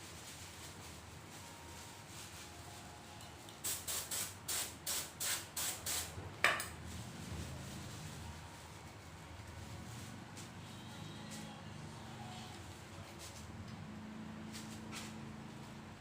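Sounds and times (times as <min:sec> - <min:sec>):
spray paint hissing bursts: 0:03.6 - 0:06.1.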